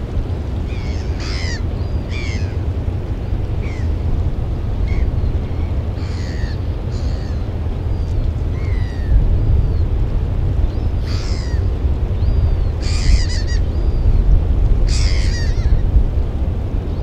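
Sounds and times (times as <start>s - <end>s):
steady low rumble: 0.0s - 17.0s
harsh screechy bird calls: 0.7s - 2.6s, 3.6s - 3.9s, 6.0s - 9.1s, 10.7s - 14.0s, 14.9s - 15.8s.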